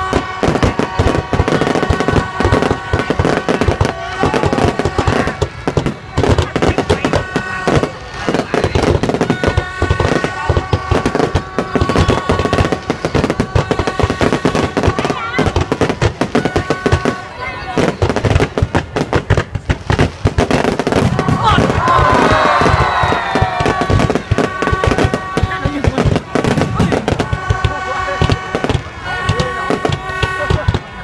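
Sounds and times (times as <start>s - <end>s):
fireworks bangs and crackling: 0.0s - 31.0s.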